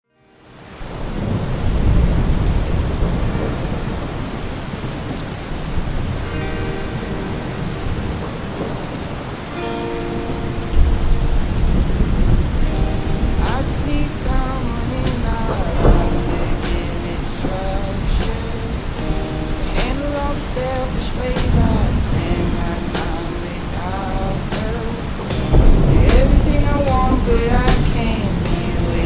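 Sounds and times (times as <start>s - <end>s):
heavy rain: 0.2s - 29.0s
low rolling thunder: 0.8s - 9.2s, 10.3s - 29.0s
faint music notes: 6.1s - 29.0s.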